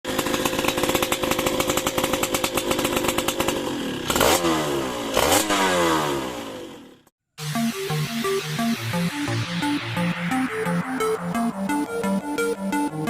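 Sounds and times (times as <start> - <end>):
two-stroke engine fast idle: 0.1 - 7.1.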